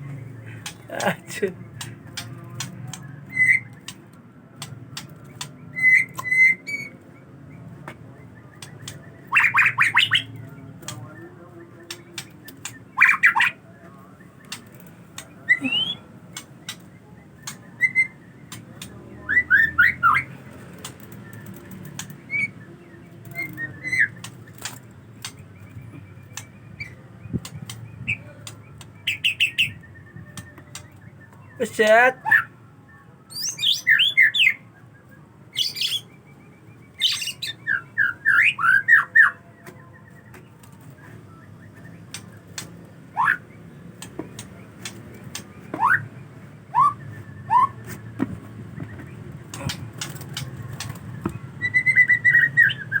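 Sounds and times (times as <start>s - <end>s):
sharp bird clicks: 0.6s - 1.0s, 1.7s - 6.4s, 8.5s - 11.0s, 11.9s - 13.5s, 14.4s - 17.7s, 20.7s - 22.3s, 23.2s - 31.4s, 41.7s - 46.0s, 46.8s - 51.4s
bird chirping and whistling: 2.9s - 4.0s, 5.0s - 7.0s, 8.4s - 10.5s, 11.9s - 13.6s, 15.2s - 18.6s, 19.2s - 20.3s, 21.2s - 32.5s, 33.3s - 39.4s, 41.4s - 53.0s.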